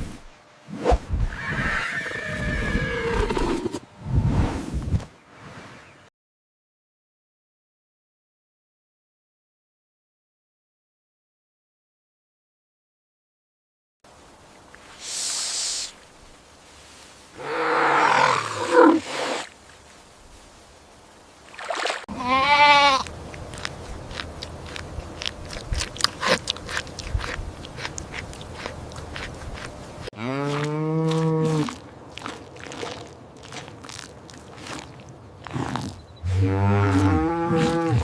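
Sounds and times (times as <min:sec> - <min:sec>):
animal hissing: 0:15.0 - 0:16.0, 0:17.4 - 0:19.5
pitched animal call: 0:22.1 - 0:23.1
rough growling animal call: 0:35.4 - 0:38.0.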